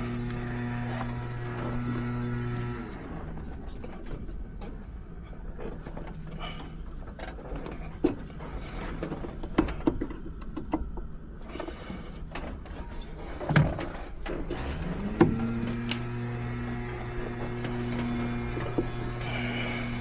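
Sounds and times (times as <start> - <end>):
small motor humming: 0.0 - 4.0, 14.4 - 20.0
metal clicks and knocks: 7.0 - 11.3.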